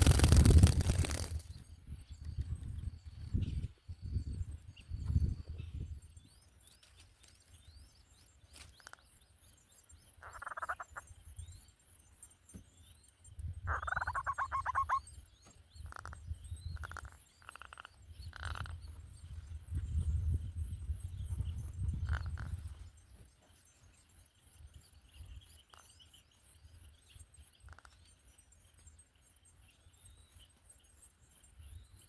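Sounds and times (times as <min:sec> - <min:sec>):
buzzy rapid bird trills: 0:00.0 - 0:32.0
small birds chirping: 0:00.0 - 0:32.0
pulsed bird calls: 0:10.1 - 0:11.2, 0:13.6 - 0:15.2.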